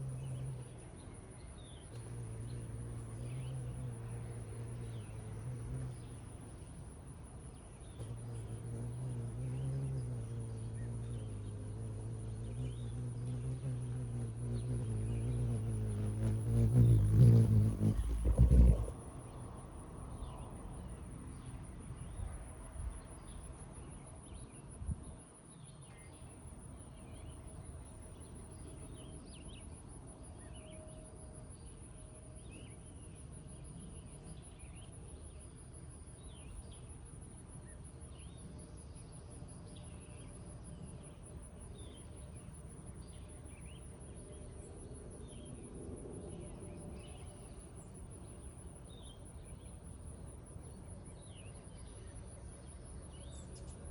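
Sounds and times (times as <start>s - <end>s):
insect trill: 0.0s - 53.9s
low rumble with thumps: 11.8s - 19.0s.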